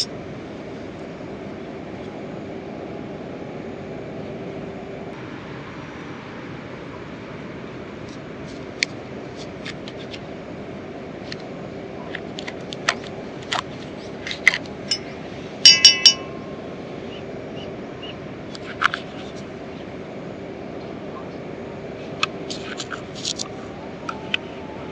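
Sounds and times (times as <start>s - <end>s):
ringing clinks on metal vessel: 14.9s - 16.4s
camp cookware taps and clinks: 15.7s - 16.3s.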